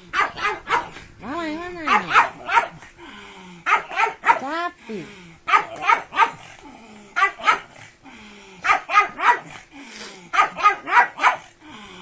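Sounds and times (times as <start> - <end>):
dog barking high-pitched: 0.1 - 1.0, 1.8 - 2.8, 3.7 - 4.5, 5.5 - 6.4, 7.2 - 7.7, 8.6 - 9.5, 10.3 - 11.5.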